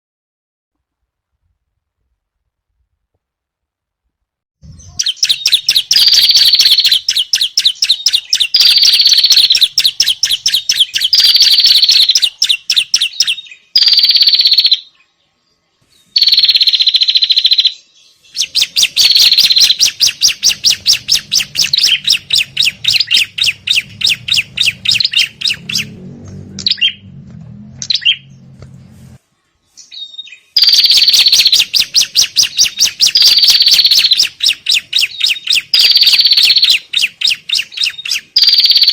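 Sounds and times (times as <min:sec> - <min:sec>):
bird alarm chatter: 0:04.6 - 0:15.0, 0:16.0 - 0:26.0, 0:27.8 - 0:28.5, 0:29.8 - 0:38.9.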